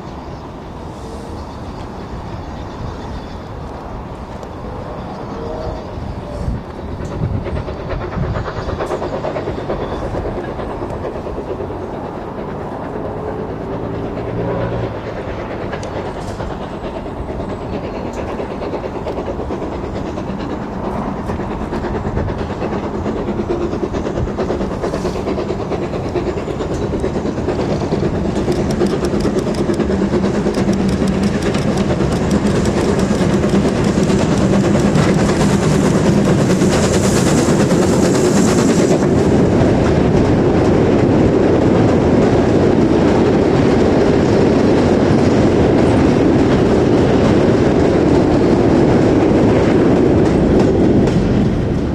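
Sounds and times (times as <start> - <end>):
steam train running: 0.0 - 51.9
wheels clacking over rail joints: 6.7 - 43.9.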